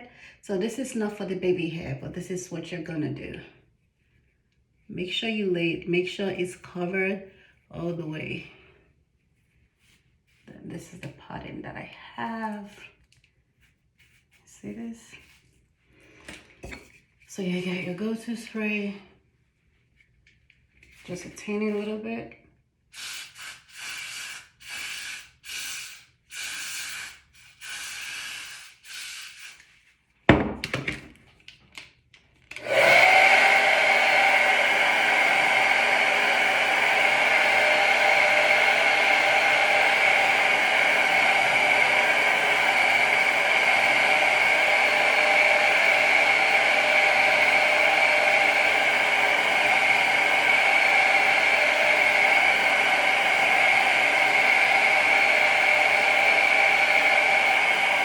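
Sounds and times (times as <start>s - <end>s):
hair dryer whining and blowing: 23.0s - 29.6s, 32.5s - 58.0s.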